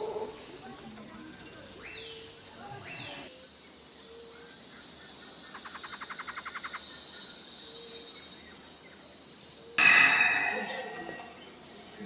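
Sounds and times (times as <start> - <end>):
insect hiss: 3.3 - 12.0.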